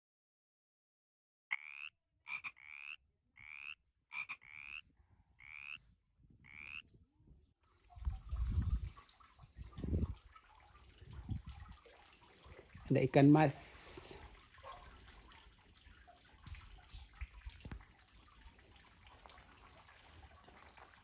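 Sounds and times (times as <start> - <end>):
frog calling: 1.5 - 4.8, 5.4 - 5.8, 6.4 - 6.9, 7.8 - 21.0
high insect trill: 7.6 - 21.0.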